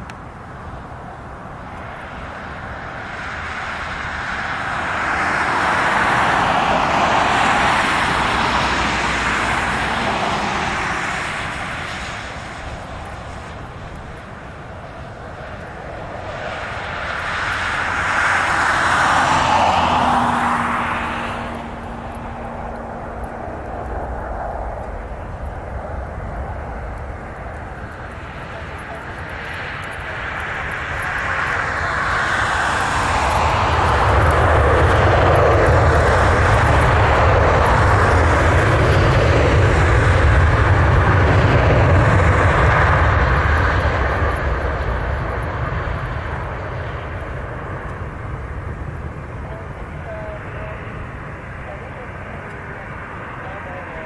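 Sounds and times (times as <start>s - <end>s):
aircraft engines passing overhead: 0.0s - 54.0s.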